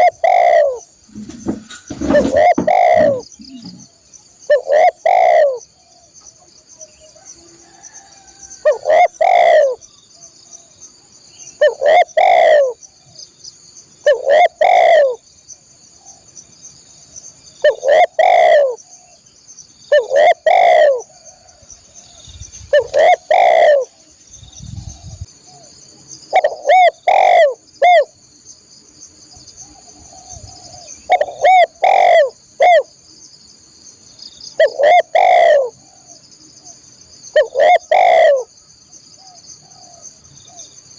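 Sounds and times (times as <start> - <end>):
dove cooing loudly: 0.0 - 3.9, 4.5 - 5.6, 8.6 - 9.8, 11.6 - 12.8, 14.0 - 15.2, 17.6 - 18.8, 19.9 - 21.2, 22.7 - 23.9, 26.3 - 28.1, 30.0 - 32.9, 34.6 - 36.2, 37.4 - 38.5.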